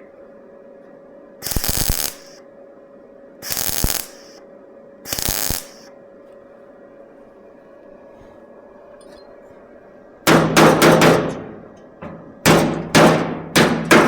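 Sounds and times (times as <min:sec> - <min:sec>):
hammer striking steel: 0:10.3 - 0:11.6, 0:12.4 - 0:14.0.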